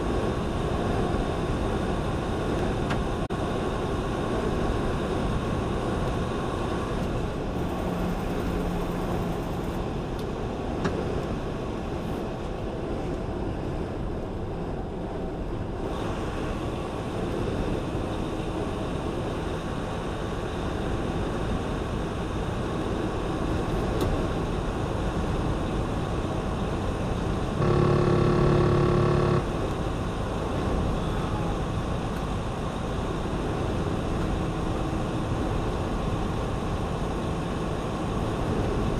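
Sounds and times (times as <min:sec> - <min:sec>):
road and engine noise in truck cab: 0:00.0 - 0:38.9
loud multi-pitch horn tone: 0:27.6 - 0:29.5.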